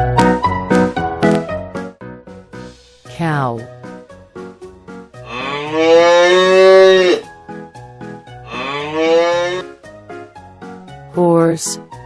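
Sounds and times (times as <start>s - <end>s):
light background music: 0.0s - 12.0s
cow mooing: 5.2s - 7.3s, 8.4s - 9.7s.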